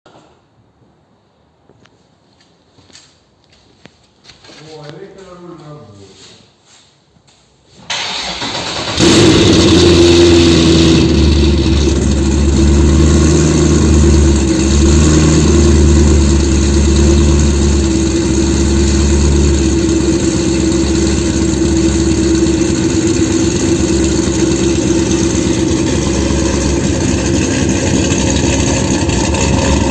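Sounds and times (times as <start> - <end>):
starter motor cranking: 7.9 - 9.8
car engine idling: 7.9 - 29.9.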